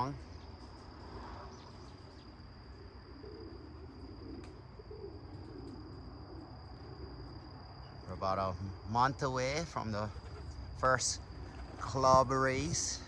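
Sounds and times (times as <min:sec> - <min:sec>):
high-pitched insect trill: 0:00.0 - 0:13.0
pigeon cooing: 0:02.7 - 0:07.6.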